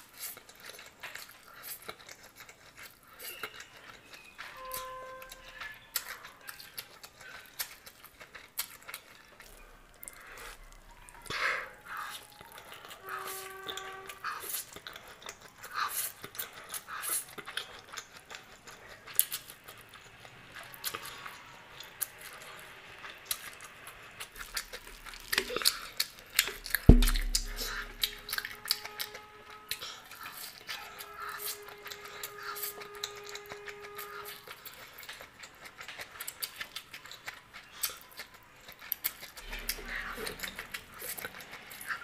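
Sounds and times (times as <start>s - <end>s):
person chewing noodles: 0.0s - 4.6s, 5.4s - 29.1s, 29.7s - 42.0s
sharp knock with low thump: 26.9s - 28.2s.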